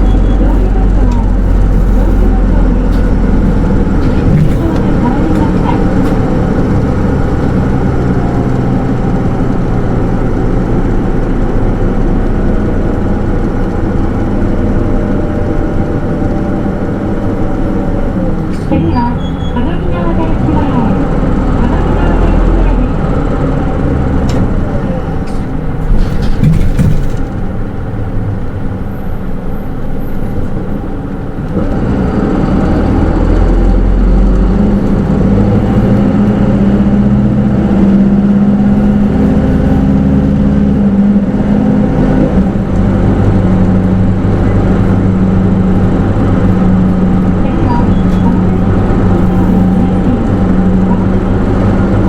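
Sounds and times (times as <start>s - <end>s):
bus diesel engine droning: 0.0s - 52.0s.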